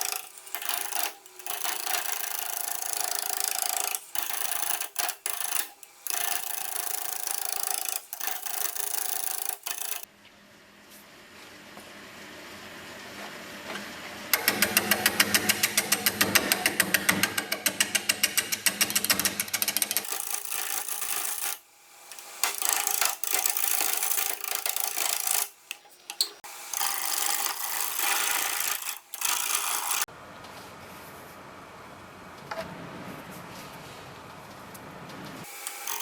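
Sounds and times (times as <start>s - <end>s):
turning tool cutting wood on lathe: 0.0s - 10.1s, 14.4s - 30.1s, 35.5s - 36.0s.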